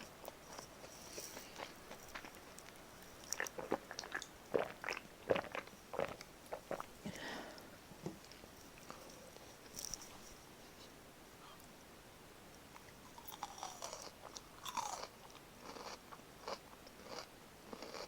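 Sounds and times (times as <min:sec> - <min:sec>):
crunching and chewing fried chicken: 0:00.0 - 0:07.0, 0:12.8 - 0:18.0.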